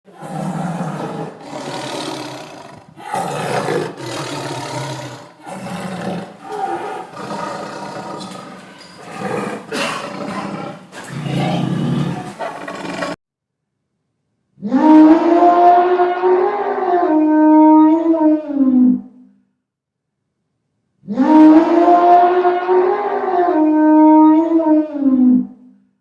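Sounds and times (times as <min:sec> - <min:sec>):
big cat roaring: 0:00.1 - 0:13.2.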